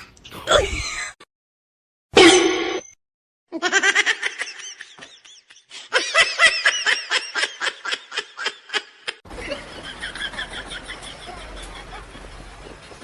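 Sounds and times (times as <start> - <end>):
high-pitched cackling laughter: 3.6 - 12.0.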